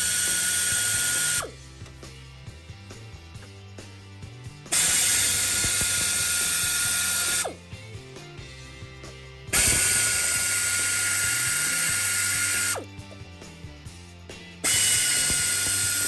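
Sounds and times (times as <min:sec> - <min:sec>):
pneumatic air ratchet whine: 0:00.0 - 0:01.6, 0:04.7 - 0:07.6, 0:09.5 - 0:12.9, 0:14.6 - 0:16.0.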